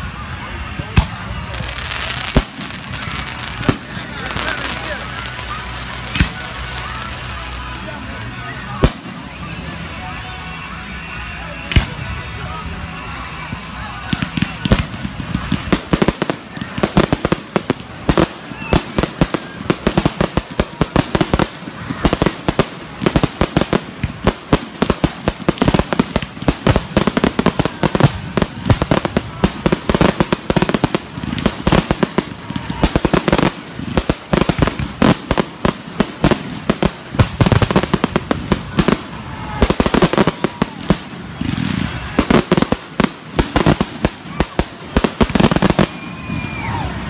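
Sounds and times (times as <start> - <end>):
fireworks bangs and crackles: 0.0 - 47.0.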